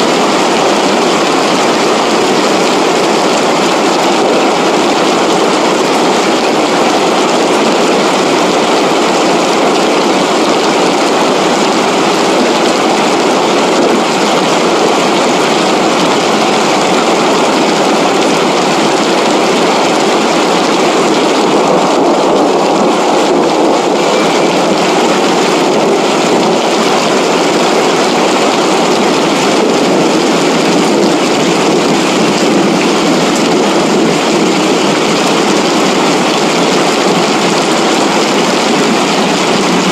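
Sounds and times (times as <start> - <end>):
flood water rushing: 0.0 - 39.9.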